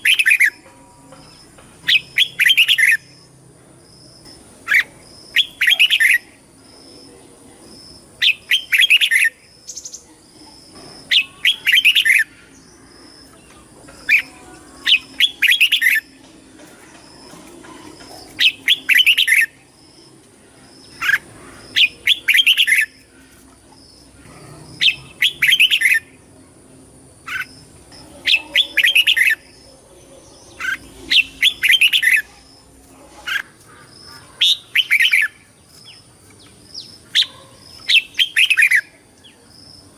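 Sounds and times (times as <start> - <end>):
faint steady high tone: 0.0 - 3.2
bulbul singing warbled phrases: 0.0 - 3.3, 4.6 - 26.3, 27.2 - 39.9.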